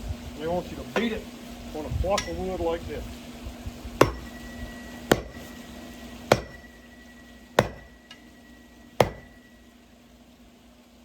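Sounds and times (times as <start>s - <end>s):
metal pole banging on wood: 4.0s - 8.4s, 9.0s - 9.6s.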